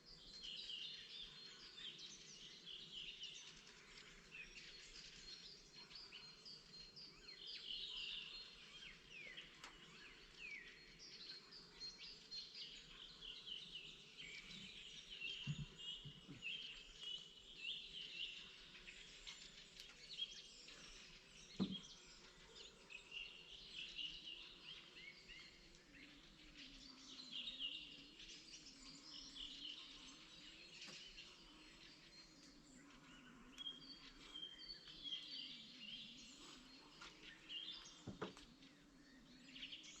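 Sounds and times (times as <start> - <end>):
songbirds chirping and trilling: 0.0 - 40.0.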